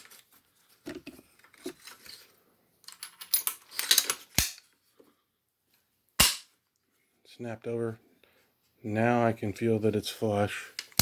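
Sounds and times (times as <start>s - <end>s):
rifle parts clinking and rattling: 0.9s - 4.8s, 10.8s - 11.0s
metallic rifle snap: 3.9s - 4.6s, 6.2s - 6.5s.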